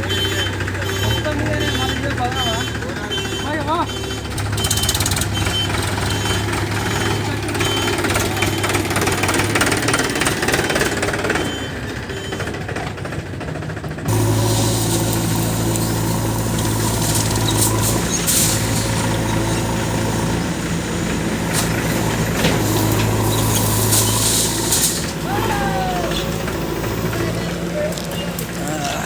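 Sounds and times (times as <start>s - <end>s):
heavy diesel engine running: 0.0s - 29.0s
metallic clatters: 14.1s - 20.5s, 21.4s - 25.2s.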